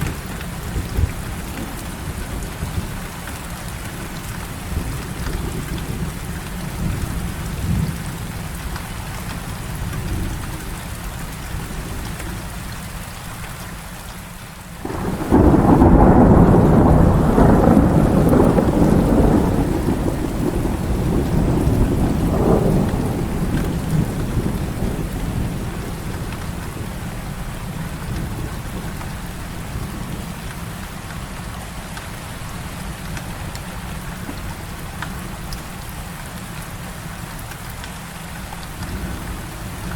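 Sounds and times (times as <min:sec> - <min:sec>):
heavy rain falling: 0:00.0 - 0:39.9
thunder rumbling: 0:14.8 - 0:30.4.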